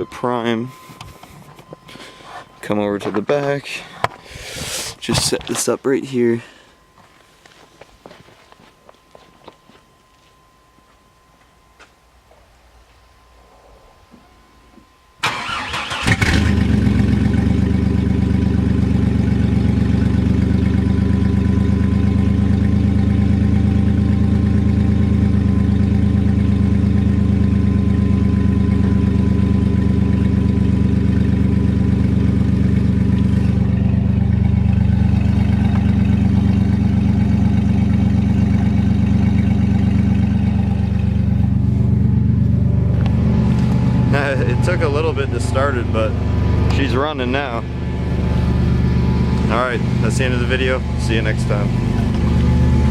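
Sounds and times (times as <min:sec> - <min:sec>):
starter motor cranking: 0:15.2 - 0:16.6
engine running steadily: 0:15.2 - 0:52.9.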